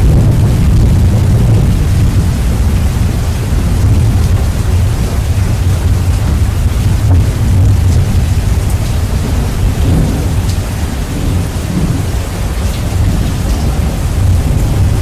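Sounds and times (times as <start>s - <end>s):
deep thunder rumble: 0.0s - 15.0s
heavy rain hiss: 0.0s - 15.0s.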